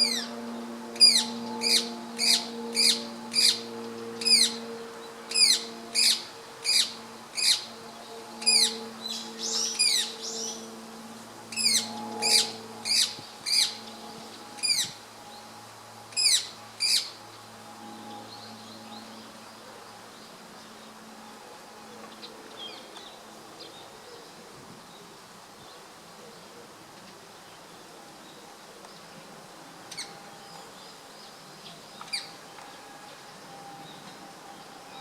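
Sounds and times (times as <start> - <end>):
parakeet shrill calls: 1.0 - 3.6, 4.2 - 4.6, 5.3 - 7.7, 8.4 - 10.5, 11.5 - 13.8, 14.6 - 15.0.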